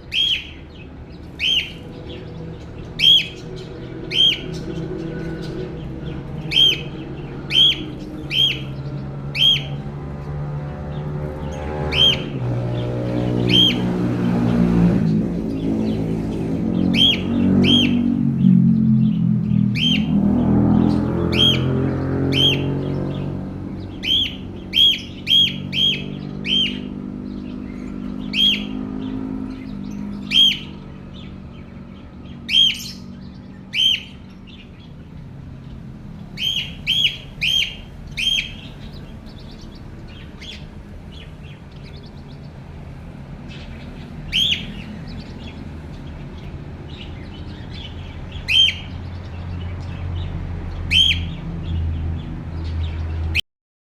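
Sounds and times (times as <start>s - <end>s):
budgerigar chirps: 0.0s - 0.6s, 1.4s - 1.8s, 3.0s - 3.4s, 4.1s - 4.7s, 6.5s - 6.9s, 7.5s - 9.8s, 11.9s - 12.3s, 13.5s - 13.9s, 24.0s - 26.9s, 28.3s - 28.8s, 30.2s - 30.8s, 32.5s - 33.1s, 33.7s - 34.2s, 36.4s - 40.7s, 44.3s - 44.9s, 47.7s - 49.2s, 50.9s - 51.3s.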